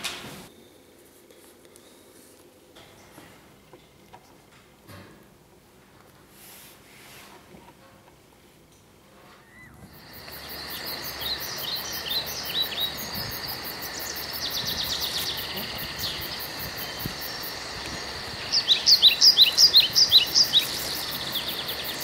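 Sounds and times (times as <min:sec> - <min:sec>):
faint high hum: 0:09.1 - 0:22.0
songbirds chirping: 0:09.7 - 0:22.0.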